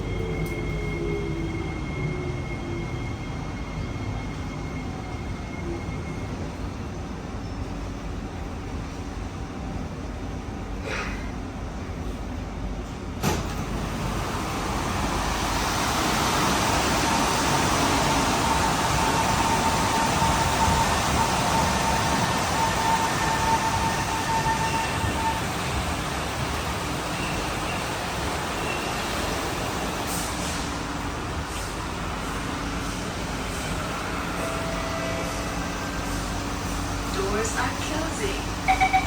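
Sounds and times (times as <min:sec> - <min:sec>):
metro train motor tones: 0:00.0 - 0:09.0, 0:12.8 - 0:39.0.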